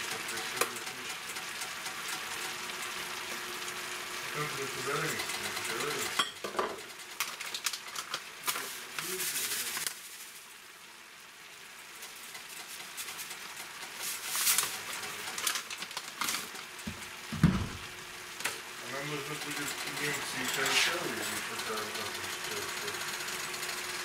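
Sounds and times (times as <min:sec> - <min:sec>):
food sizzling in a frying pan: 0:00.0 - 0:24.0
low thud: 0:17.4 - 0:17.8.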